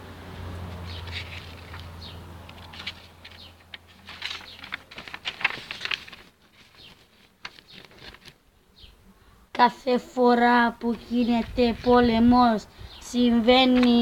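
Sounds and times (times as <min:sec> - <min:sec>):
small birds chirping: 0:00.8 - 0:04.8, 0:06.6 - 0:09.0, 0:11.0 - 0:14.0.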